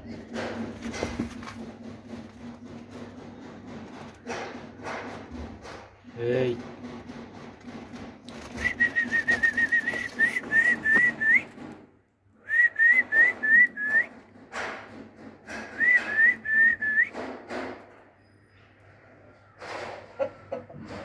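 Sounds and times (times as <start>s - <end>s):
whistled notes: 8.5s - 11.6s, 12.4s - 14.2s, 15.6s - 17.2s.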